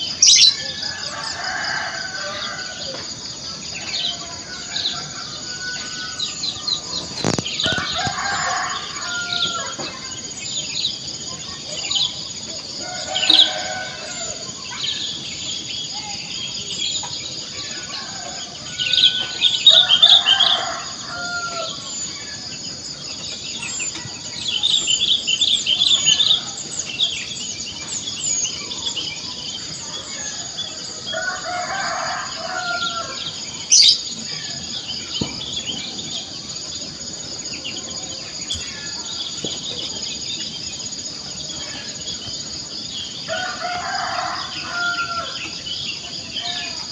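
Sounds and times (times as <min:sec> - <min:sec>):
small birds chirping: 0:00.0 - 0:46.9
rooster crowing: 0:00.3 - 0:03.1, 0:07.6 - 0:09.9, 0:12.8 - 0:14.4, 0:17.6 - 0:21.8, 0:30.0 - 0:34.0, 0:43.3 - 0:45.6.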